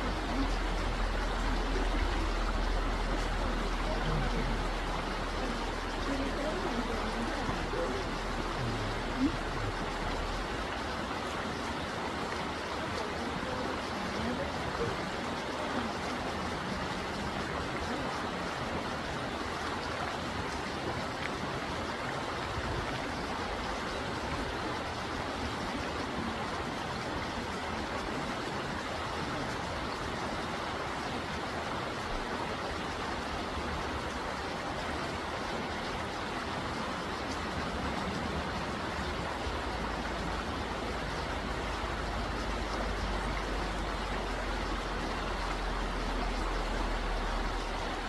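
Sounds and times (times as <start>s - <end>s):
stream rushing: 0.0s - 48.0s.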